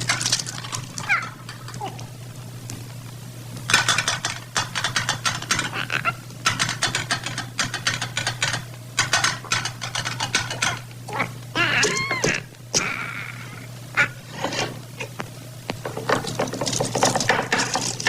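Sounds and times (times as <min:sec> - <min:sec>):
steady low hum: 0:00.0 - 0:18.0
rapid clattering clicks: 0:02.9 - 0:11.0, 0:15.2 - 0:18.0.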